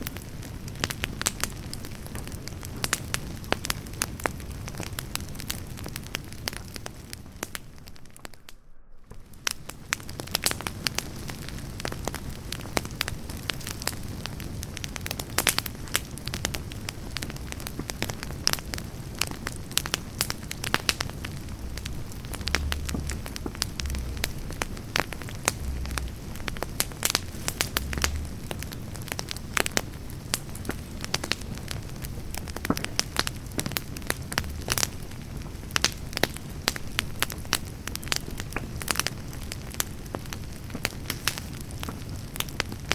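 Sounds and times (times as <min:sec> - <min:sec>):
campfire crackling and popping: 0:00.0 - 0:42.9
low thuds: 0:20.7 - 0:29.3.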